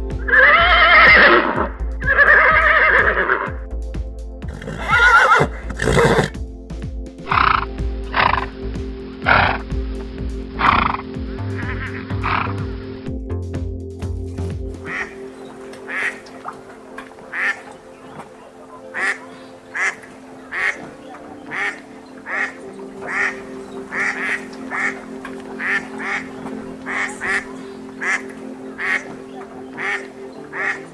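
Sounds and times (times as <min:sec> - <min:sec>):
background music: 0:00.0 - 0:30.9
ducks quacking: 0:07.2 - 0:08.6, 0:10.5 - 0:12.9, 0:14.8 - 0:30.9.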